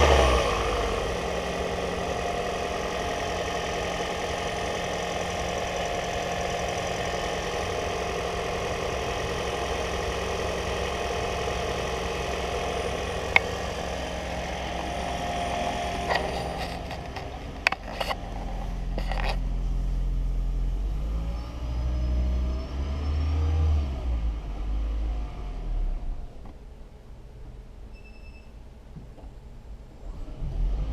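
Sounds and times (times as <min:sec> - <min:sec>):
car engine running: 0:00.0 - 0:22.7
sharp clicks and knocks: 0:13.3 - 0:13.5, 0:16.0 - 0:19.4.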